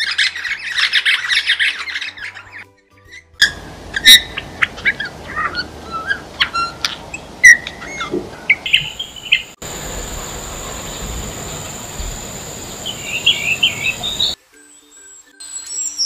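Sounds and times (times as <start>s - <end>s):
bird chirps and whistled notes: 0.0s - 16.0s
constant high whine: 3.5s - 14.4s
steady hiss: 9.0s - 15.8s.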